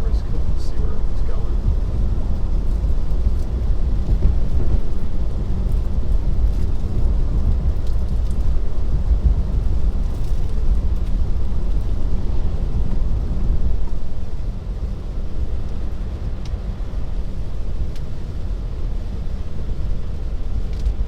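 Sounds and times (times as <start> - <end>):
tyres on a flooded road: 0.0 - 8.6
heavy rain on a car: 0.0 - 21.0.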